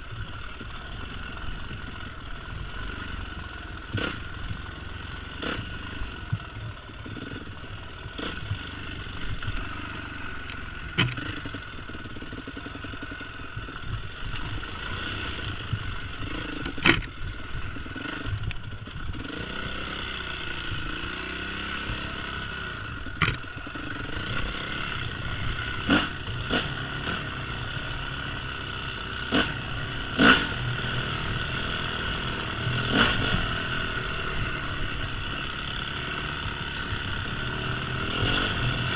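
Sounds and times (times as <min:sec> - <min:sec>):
dirt bike engine: 0:00.0 - 0:38.9
sharp knocks and clatter: 0:10.5 - 0:11.6, 0:16.6 - 0:17.2, 0:23.2 - 0:23.5.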